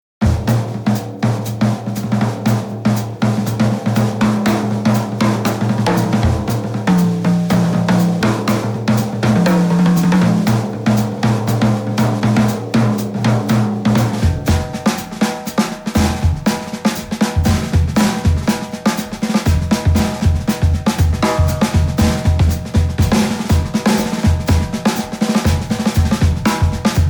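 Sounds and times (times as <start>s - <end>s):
drum kit beat: 0.2s - 27.0s
bass line: 17.4s - 18.4s.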